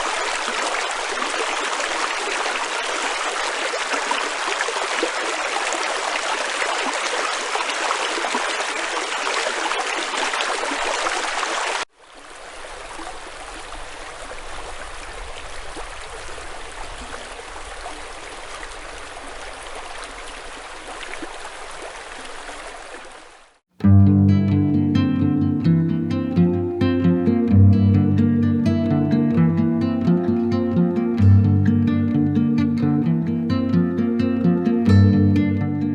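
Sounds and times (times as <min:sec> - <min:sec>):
stream splashing over stones: 0:00.0 - 0:23.6.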